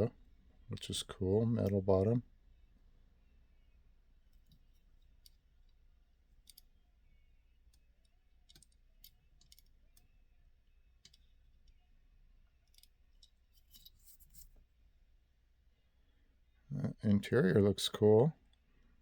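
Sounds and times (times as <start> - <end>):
quiet room hum: 0.0 - 19.0
metal toy car clicking in hands: 6.4 - 6.7, 8.5 - 10.0, 12.7 - 14.5.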